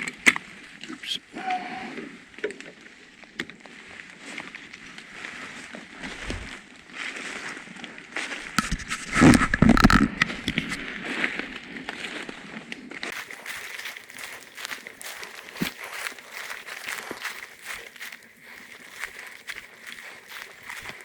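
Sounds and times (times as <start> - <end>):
rustling and thumps: 6.0 - 6.6
footsteps crunching through leaves: 13.1 - 21.0.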